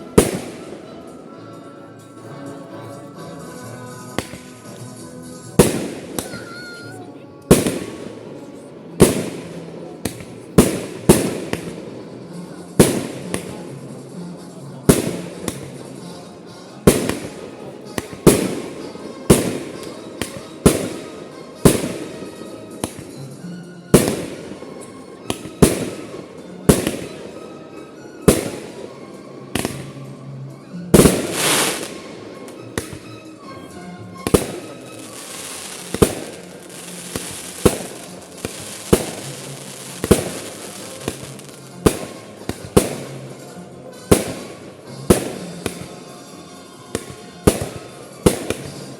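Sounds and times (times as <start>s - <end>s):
firework crackling: 3.9s - 6.9s, 7.5s - 8.3s, 9.0s - 12.0s, 14.9s - 16.0s, 16.8s - 27.4s, 30.9s - 33.1s, 34.2s - 43.4s, 44.1s - 45.9s, 46.9s - 48.9s
firework shells bursting: 34.2s - 43.2s.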